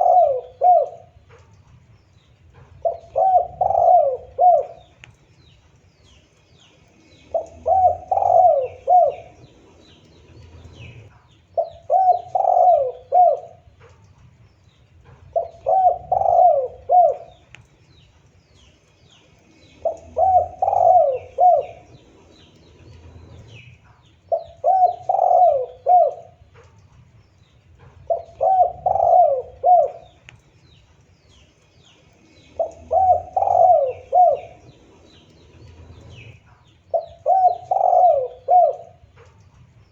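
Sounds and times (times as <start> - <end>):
dove cooing: 0.0 - 1.5, 2.5 - 5.1, 7.1 - 14.0, 15.0 - 17.7, 19.5 - 26.6, 27.8 - 30.4, 32.1 - 39.3
small birds chirping: 0.0 - 39.9.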